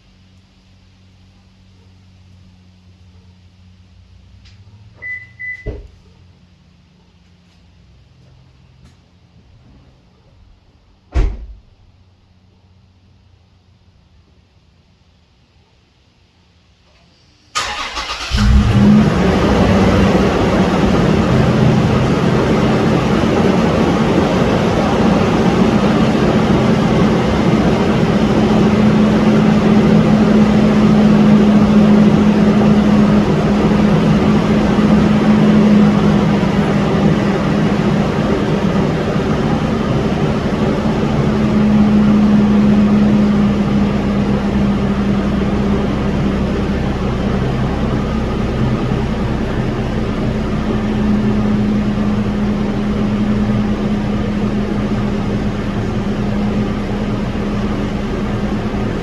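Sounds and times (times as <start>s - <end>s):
constant noise: 0.0s - 59.0s
engine drone: 17.0s - 59.0s
low hum: 17.4s - 59.0s.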